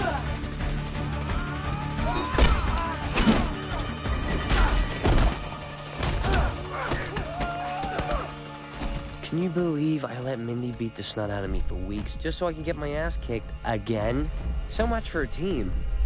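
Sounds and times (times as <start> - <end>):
film music score: 0.0 - 16.0
punches and kicks landing: 2.0 - 9.1.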